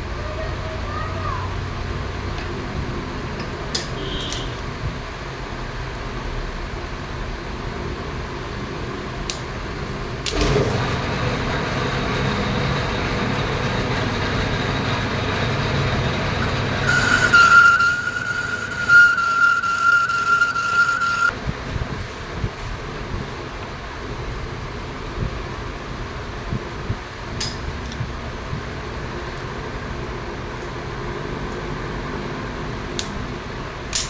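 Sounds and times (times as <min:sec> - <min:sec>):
metal lathe running: 0:09.8 - 0:21.3
lathe start-up knock: 0:10.3 - 0:21.1
cutting tool squealing: 0:10.3 - 0:21.3.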